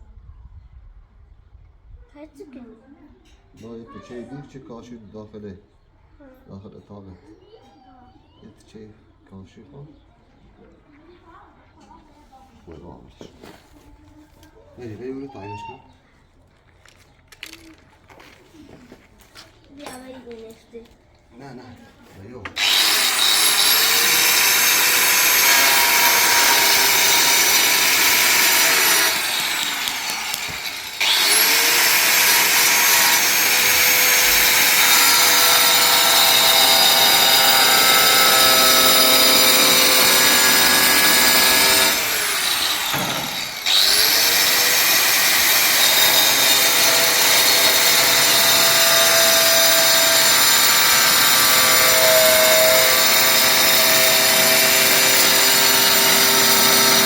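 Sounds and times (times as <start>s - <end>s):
electric power tool spinning: 22.6s - 57.0s.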